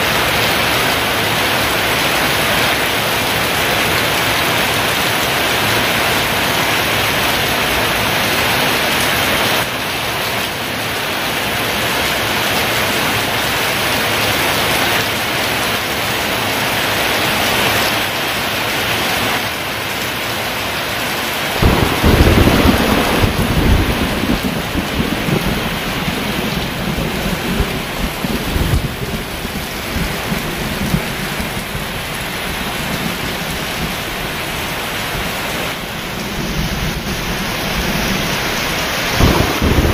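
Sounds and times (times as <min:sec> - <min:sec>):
heavy rain pouring: 0:00.0 - 0:39.9
thunder clap rumbling: 0:21.6 - 0:39.9.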